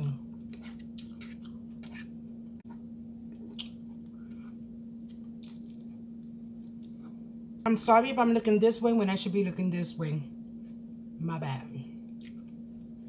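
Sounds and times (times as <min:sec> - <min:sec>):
low electrical hum: 0:00.0 - 0:13.0
person chewing food: 0:00.3 - 0:07.3.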